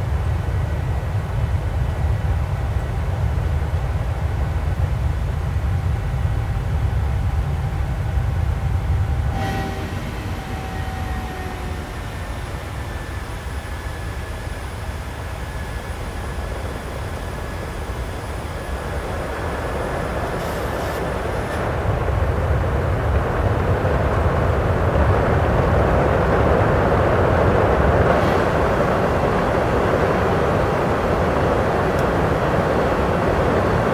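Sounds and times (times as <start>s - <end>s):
low engine rumble: 0.0s - 33.9s
thin engine whine: 5.7s - 33.9s
rushing air noise: 9.1s - 22.3s, 26.1s - 33.9s.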